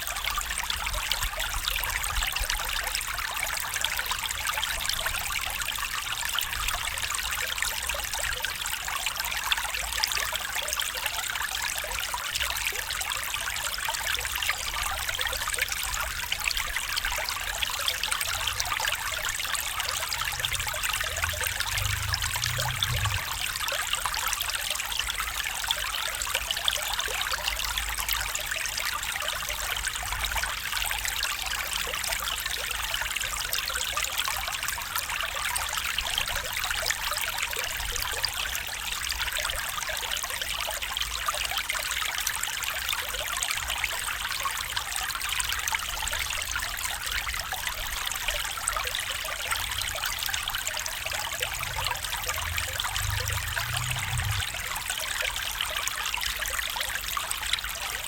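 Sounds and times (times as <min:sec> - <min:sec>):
stream flowing: 0:00.0 - 0:58.0
low rumble: 0:18.4 - 0:23.8, 0:50.9 - 0:54.9.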